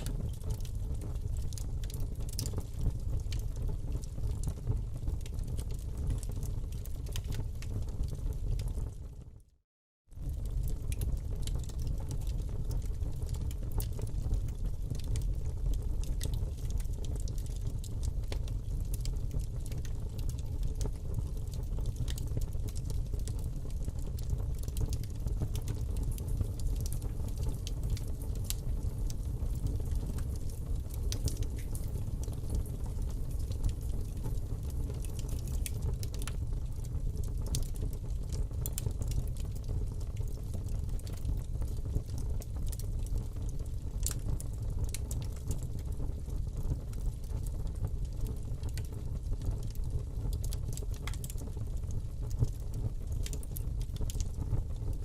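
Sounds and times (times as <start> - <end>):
fire crackles and pops: 0.0 - 9.5, 10.1 - 55.0
fire burning in a fireplace: 0.0 - 55.0.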